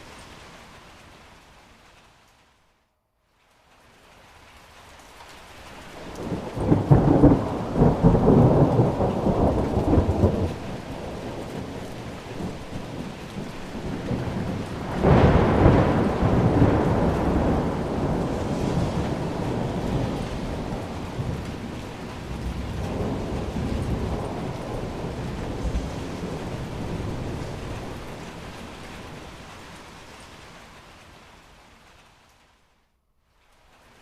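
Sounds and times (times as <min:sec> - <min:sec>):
rain falling: 0:00.0 - 0:34.0
thunder rolling: 0:06.0 - 0:29.5.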